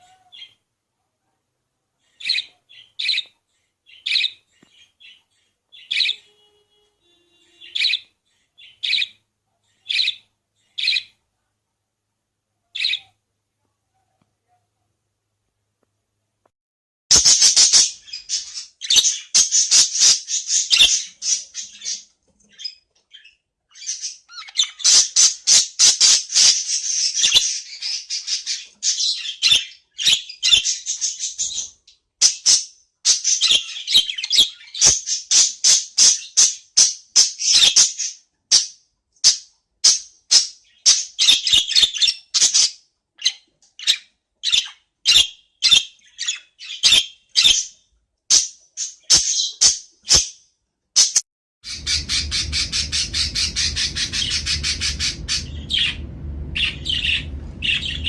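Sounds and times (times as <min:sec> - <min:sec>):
budgerigar warbling and chirping: 0:02.2 - 0:03.3, 0:03.9 - 0:06.4, 0:07.4 - 0:11.2, 0:12.7 - 0:13.2, 0:17.1 - 0:47.7, 0:51.7 - 0:58.0.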